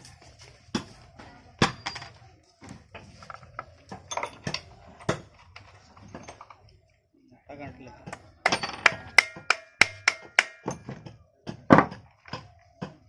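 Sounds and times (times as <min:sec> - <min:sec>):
metal tools clinking: 0:03.0 - 0:06.7.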